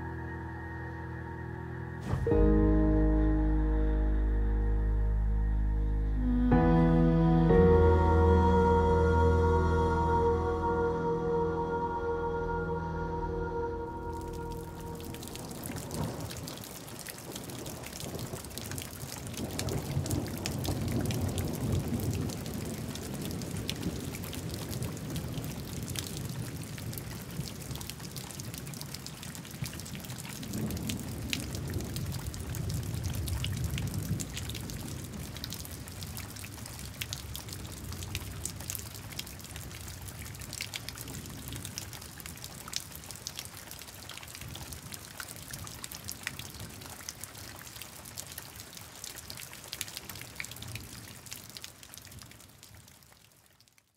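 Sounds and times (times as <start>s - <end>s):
steady rain: 0.0s - 53.9s
low rumbling thunder: 14.2s - 27.9s, 29.7s - 36.1s.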